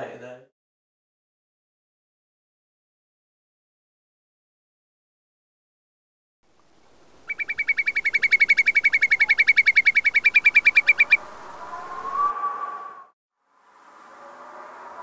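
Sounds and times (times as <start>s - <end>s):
bird trilling: 7.2s - 13.1s
short rising tone: 10.8s - 15.0s.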